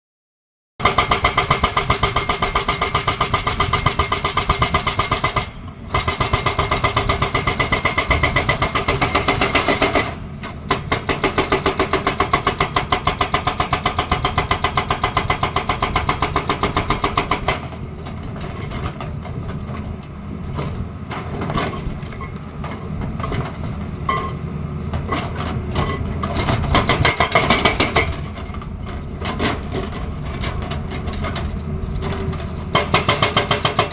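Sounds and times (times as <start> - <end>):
hydraulic breaker hammering: 0.8 - 17.8, 25.0 - 30.0, 32.7 - 33.9
machine knocks and clanks: 0.8 - 33.9.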